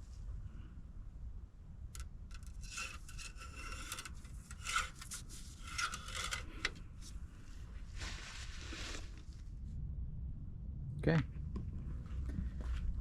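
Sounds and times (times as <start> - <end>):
steady low rumble: 0.0 - 3.5, 5.2 - 13.0
rubbing or scraping strokes: 2.3 - 9.4.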